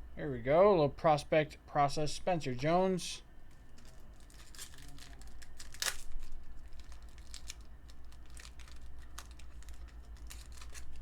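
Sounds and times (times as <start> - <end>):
steady low hum: 0.0 - 11.0
cards clicking and rustling: 3.5 - 11.0.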